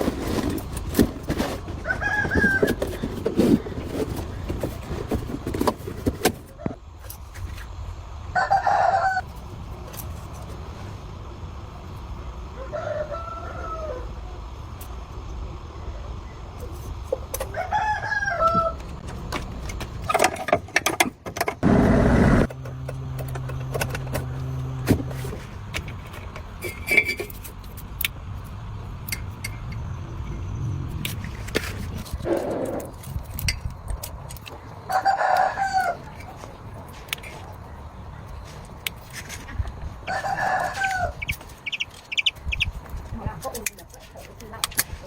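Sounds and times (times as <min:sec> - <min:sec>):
roosters crowing: 0:01.6 - 0:03.2, 0:08.3 - 0:09.2, 0:12.4 - 0:14.5, 0:17.4 - 0:19.0, 0:34.8 - 0:36.2, 0:40.0 - 0:42.2
loud burst of noise: 0:21.6 - 0:22.6.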